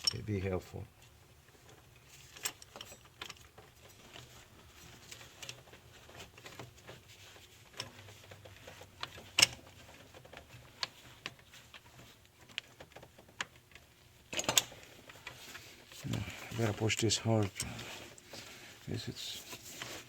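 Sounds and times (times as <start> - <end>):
metallic clicks of hand tools: 14.3 - 14.7.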